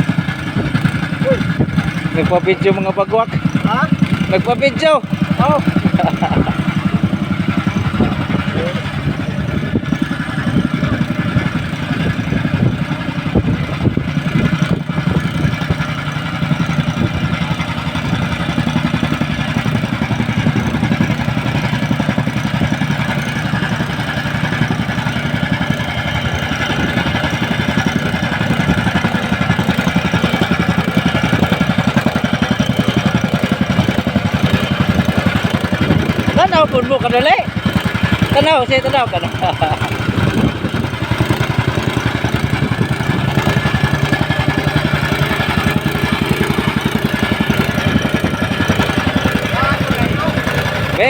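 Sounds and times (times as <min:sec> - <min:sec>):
small engine running: 0:00.0 - 0:51.0.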